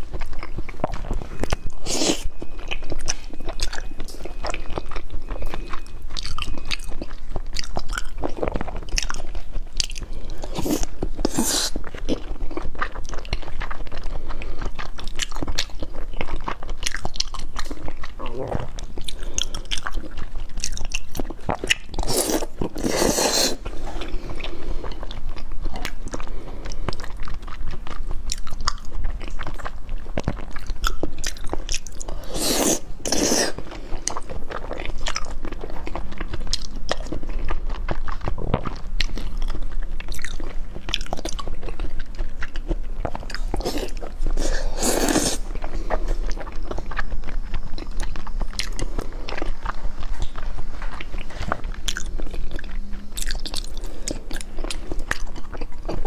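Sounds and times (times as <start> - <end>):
chewing with wet mouth clicks: 0.0 - 56.0.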